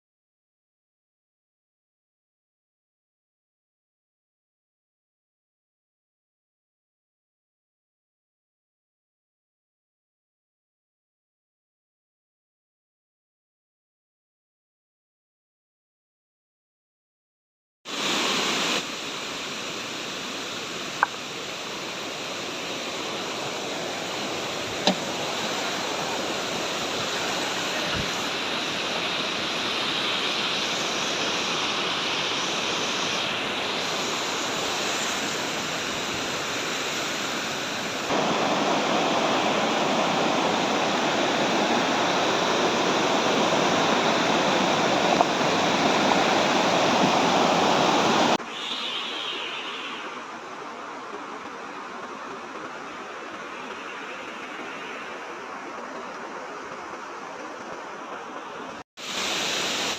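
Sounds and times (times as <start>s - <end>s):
waterfall roaring: 18.0s - 48.4s.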